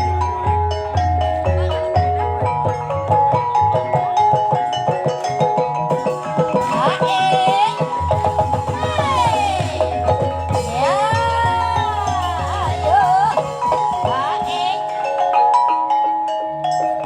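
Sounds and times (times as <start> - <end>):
person singing: 6.5 - 15.4.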